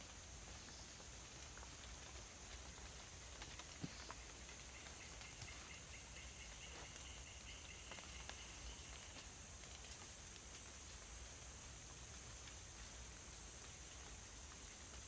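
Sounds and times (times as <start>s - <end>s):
small ticks: 1.3s - 10.9s.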